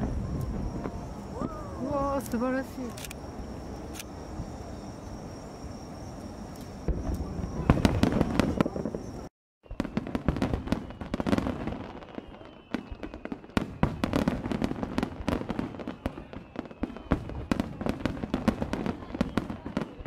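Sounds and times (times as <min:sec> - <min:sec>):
firework shell reports: 0:00.0 - 0:03.2.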